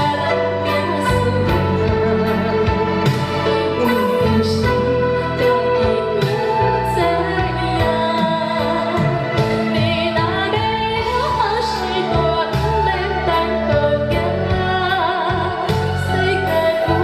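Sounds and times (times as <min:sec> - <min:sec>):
woman singing a sad ballad: 0:00.0 - 0:17.0
traditional orchestra accompaniment: 0:01.2 - 0:09.7.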